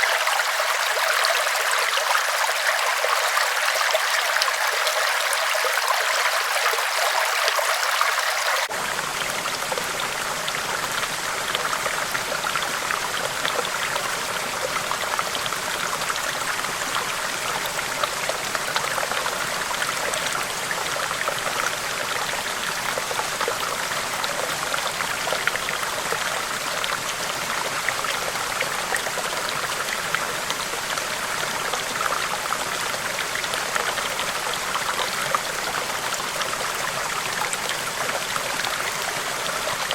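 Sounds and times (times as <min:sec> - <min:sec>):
river water rushing: 0:00.0 - 0:16.6.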